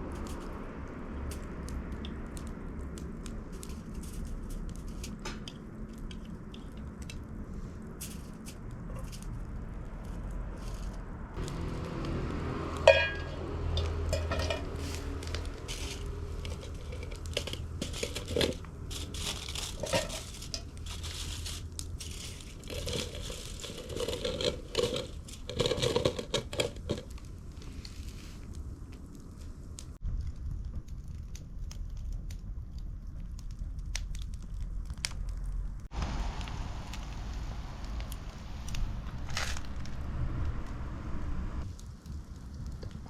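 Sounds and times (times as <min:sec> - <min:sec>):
crinkling and rustling: 0:01.3 - 0:40.8.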